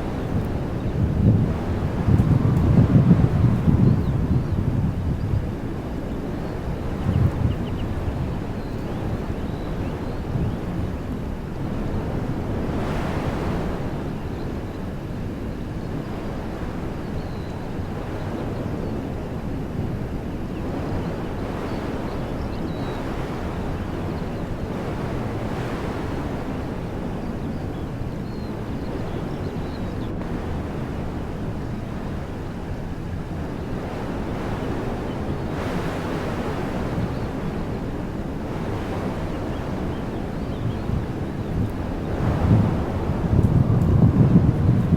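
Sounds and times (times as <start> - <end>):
wind blowing through trees: 0.0 - 44.9.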